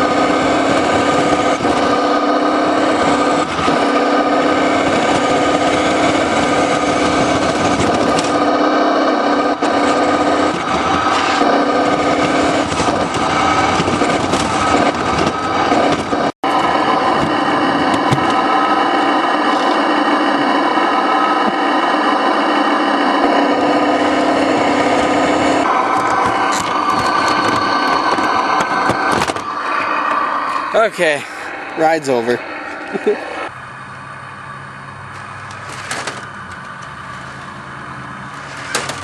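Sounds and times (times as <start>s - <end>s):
rc car motor whine: 0.0s - 39.0s.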